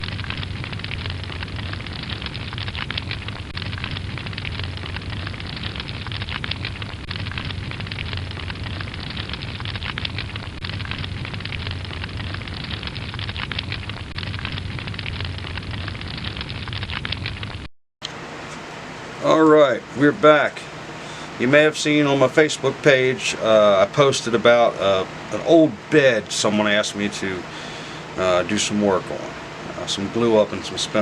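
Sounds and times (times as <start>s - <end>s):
dense crackling and rattling: 0.0s - 31.0s
low hum: 0.0s - 31.0s.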